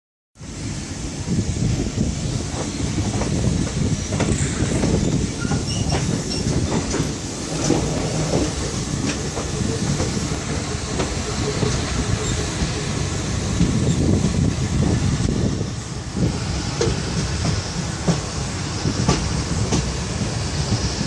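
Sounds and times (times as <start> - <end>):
train wheels rumbling: 0.4 - 21.0
wheels clicking on rails: 2.5 - 15.2.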